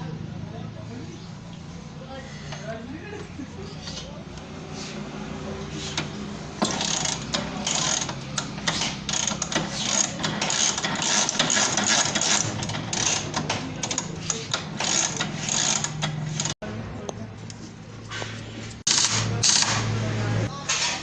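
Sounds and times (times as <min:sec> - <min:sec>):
hand tools rasping and ratcheting: 0:05.7 - 0:16.6.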